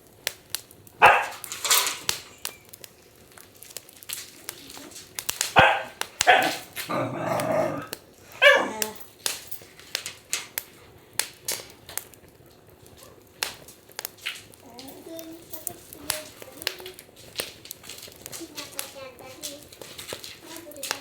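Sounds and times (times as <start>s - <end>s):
wood fire crackling and popping: 0.0s - 21.0s
dog barking: 1.0s - 1.5s, 5.6s - 9.0s, 12.4s - 13.3s.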